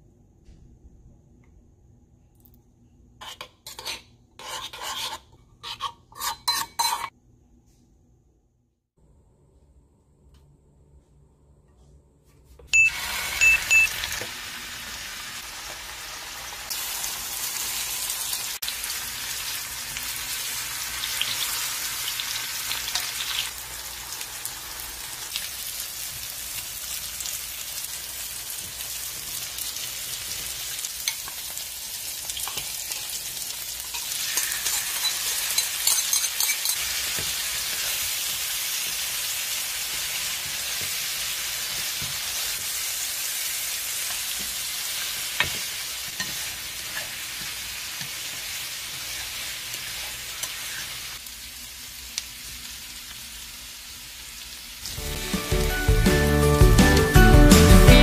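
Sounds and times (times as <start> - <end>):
food sizzling in a hot pan: 12.9 - 55.3.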